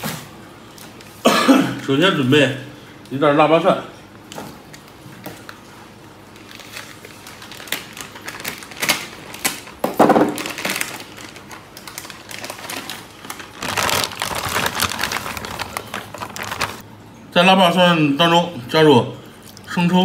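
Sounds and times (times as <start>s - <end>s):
plastic bag crinkling: 4.6s - 16.8s
knife cutting plastic bag: 6.4s - 16.8s.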